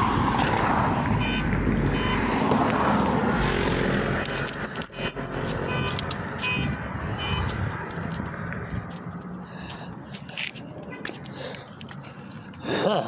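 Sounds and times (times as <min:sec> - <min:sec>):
wind rushing over microphone: 0:00.0 - 0:09.2
road traffic: 0:00.0 - 0:13.0.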